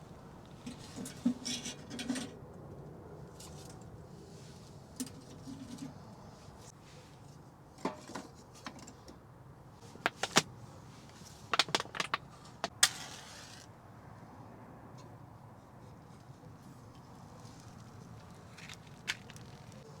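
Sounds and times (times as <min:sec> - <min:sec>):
sharp clicks and knocks: 0:10.1 - 0:10.4, 0:11.6 - 0:12.8.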